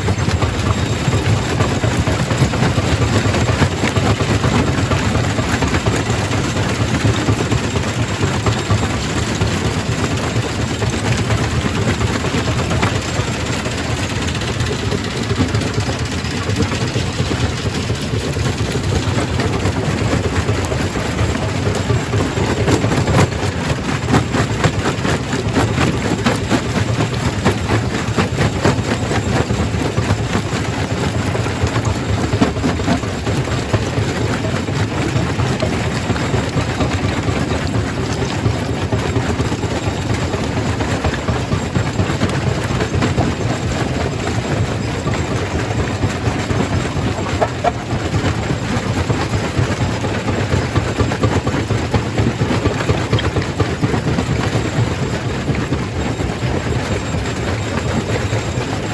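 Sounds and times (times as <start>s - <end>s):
stone rattling and knocking: 46.4s - 48.0s.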